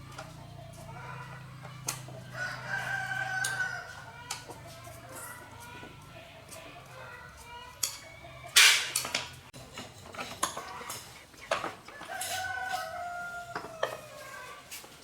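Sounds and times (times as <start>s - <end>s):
rooster crowing: 0.8s - 1.5s, 2.2s - 4.2s, 11.9s - 14.6s.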